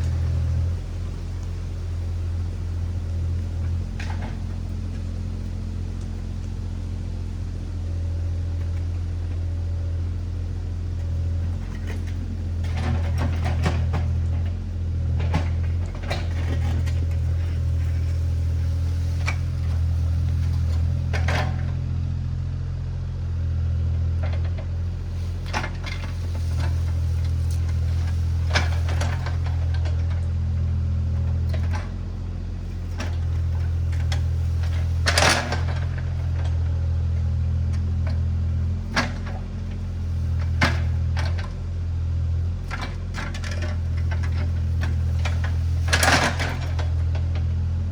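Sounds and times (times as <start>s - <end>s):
diesel engine running: 0.0s - 47.9s
machine clanks and knocks: 11.5s - 18.1s, 32.9s - 38.2s, 42.7s - 47.5s.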